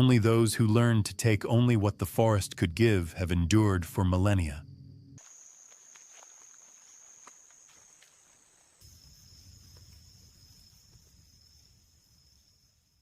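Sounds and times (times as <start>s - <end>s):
insect chorus droning: 0.0s - 13.0s.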